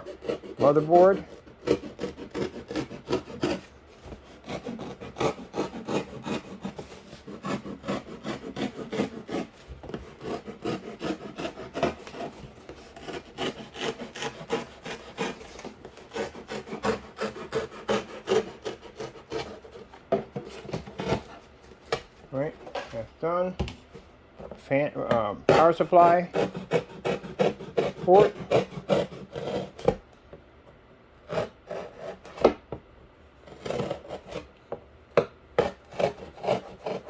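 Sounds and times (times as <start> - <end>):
knife sawing through cardboard: 0.0 - 21.6, 25.4 - 30.0, 31.2 - 32.6, 33.4 - 34.5, 35.6 - 37.0.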